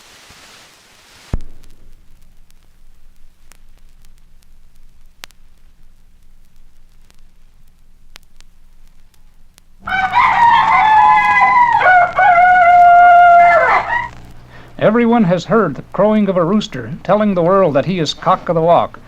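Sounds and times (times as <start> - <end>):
vinyl surface noise with clicks: 0.0 - 14.5
low hum: 1.3 - 19.0
rooster crowing: 9.8 - 14.3.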